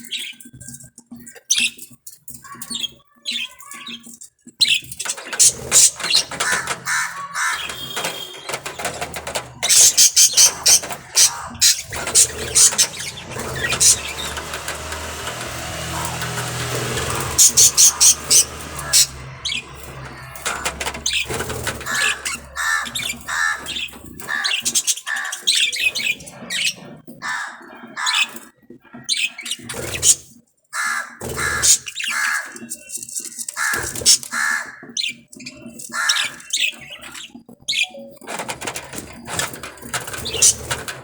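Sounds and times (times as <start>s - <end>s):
budgerigar chirping and squawking: 4.7s - 28.4s, 30.8s - 32.8s, 33.6s - 41.0s
sharp scratchy clicks: 4.8s - 24.9s, 38.2s - 41.0s.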